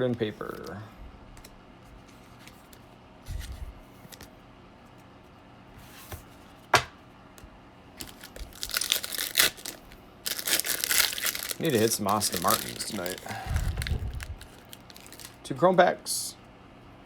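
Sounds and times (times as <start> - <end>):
foil wrapper crinkling and tearing: 8.0 - 15.4.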